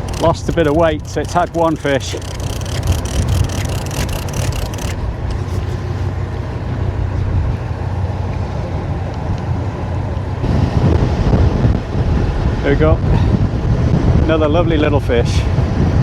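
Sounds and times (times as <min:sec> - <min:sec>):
fast sharp clicks: 0:00.0 - 0:05.4
boat noise: 0:00.0 - 0:13.5
wind on microphone: 0:08.7 - 0:16.0.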